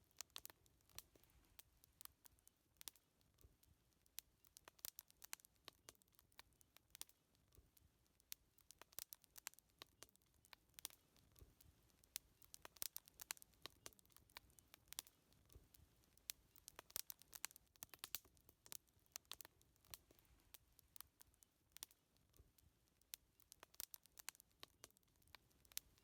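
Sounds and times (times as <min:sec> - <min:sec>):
faint low hiss: 0:00.0 - 0:26.0
wood fire crackling: 0:00.0 - 0:26.0.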